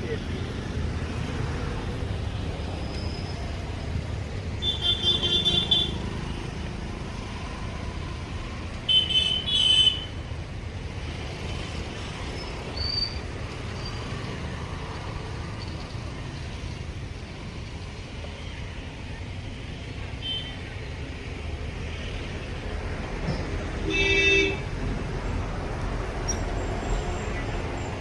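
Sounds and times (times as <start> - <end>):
road traffic rumbling: 0.0 - 28.0
vehicle horn honking: 4.6 - 6.0, 23.8 - 24.6.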